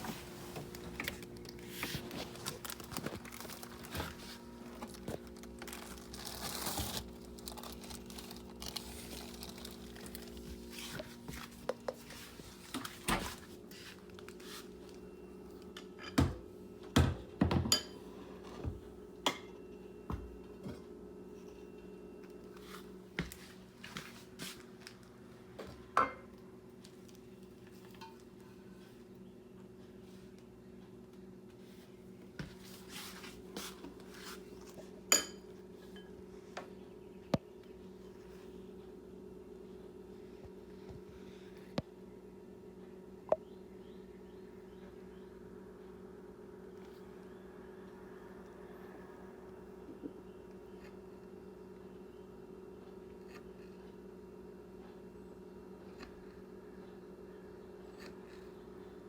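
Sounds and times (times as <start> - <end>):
steady low hum: 0.0 - 59.0
dishes and utensils clattering: 17.4 - 18.0
dishes and utensils clinking: 17.5 - 18.0, 35.1 - 36.1.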